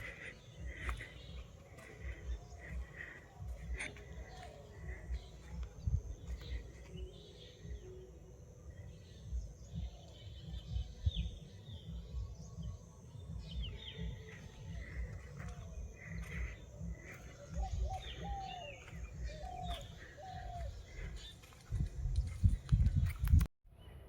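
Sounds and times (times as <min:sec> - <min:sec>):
birds chirping and calling: 0:00.0 - 0:23.5
low rumble on microphone: 0:09.4 - 0:23.5.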